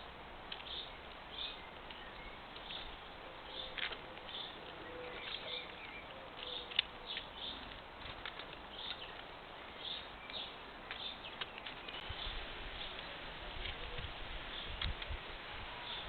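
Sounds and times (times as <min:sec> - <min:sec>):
small birds chirping: 0:00.0 - 0:16.0
steady hiss: 0:12.0 - 0:16.0.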